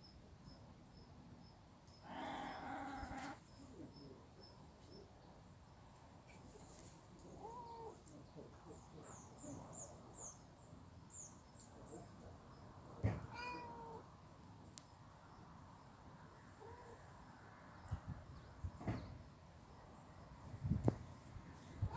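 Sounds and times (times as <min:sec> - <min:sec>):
cats crying: 0:02.1 - 0:03.4, 0:13.3 - 0:14.0.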